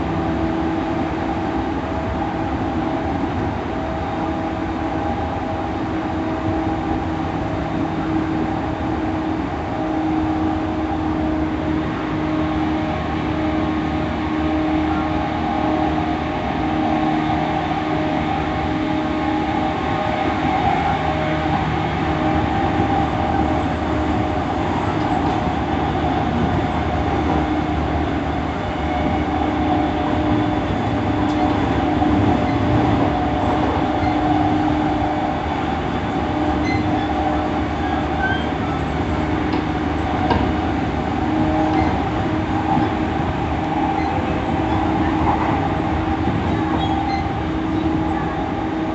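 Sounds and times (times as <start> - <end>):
train motor hum: 0.0 - 48.9.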